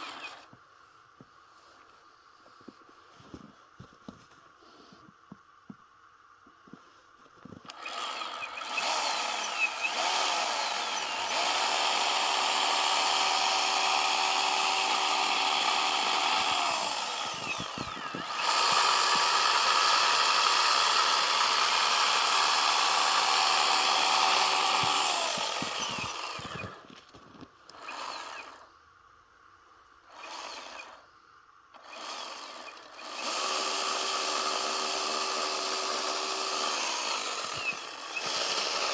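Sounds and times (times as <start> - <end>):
chainsaw cutting packed snow: 0.0 - 0.6, 7.5 - 28.7, 30.1 - 31.1, 31.8 - 38.9.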